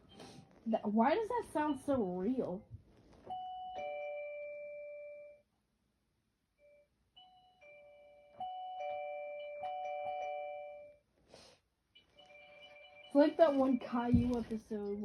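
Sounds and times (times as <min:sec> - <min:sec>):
keyboard doorbell chime: 0:03.3 - 0:05.4, 0:06.6 - 0:11.0, 0:12.0 - 0:14.6.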